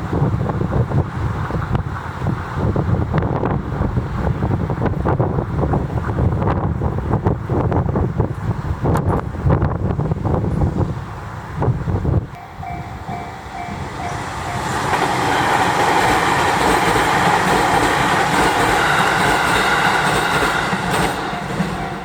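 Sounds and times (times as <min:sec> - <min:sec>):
electric train passing: 0:09.4 - 0:22.0
level crossing bell dinging: 0:12.4 - 0:14.8.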